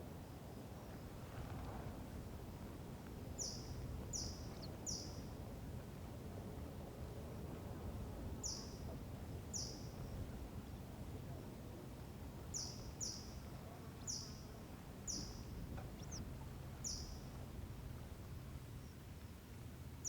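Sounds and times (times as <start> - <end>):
wind: 0.0 - 20.0
bird chirping: 15.1 - 16.2.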